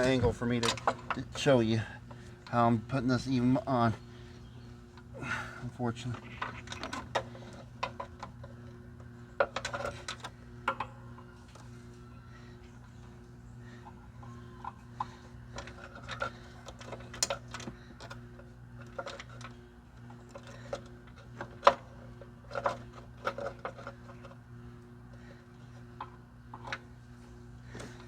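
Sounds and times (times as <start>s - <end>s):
clicks of cable and metal parts: 0.0s - 1.5s, 6.0s - 11.7s, 14.2s - 24.4s, 25.1s - 26.9s
low hum: 0.0s - 28.0s.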